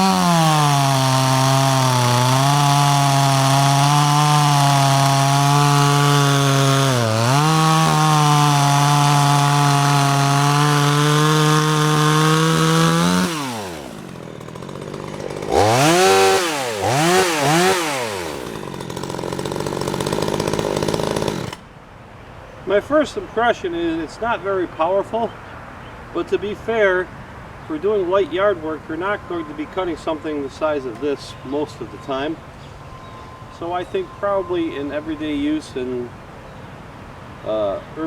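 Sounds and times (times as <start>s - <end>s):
chainsaw cutting wood: 0.0s - 21.7s
chainsaw idling: 0.0s - 21.7s, 27.8s - 36.1s.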